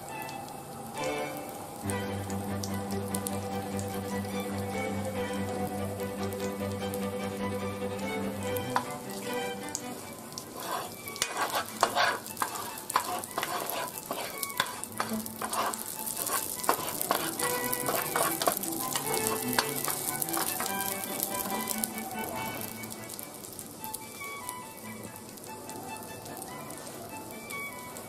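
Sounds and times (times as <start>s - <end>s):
garlic sizzling in hot oil: 0.0s - 28.0s
wooden spoon stirring: 10.4s - 23.6s.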